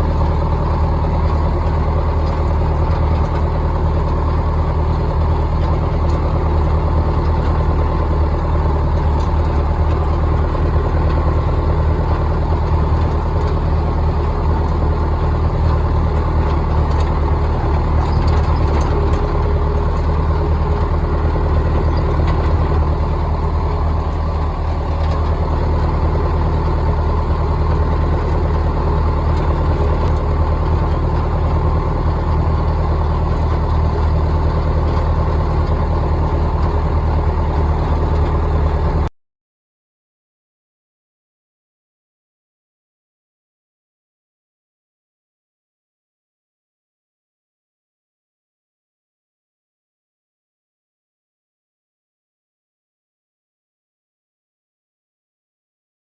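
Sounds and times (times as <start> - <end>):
tractor engine idling: 0.0 - 39.1.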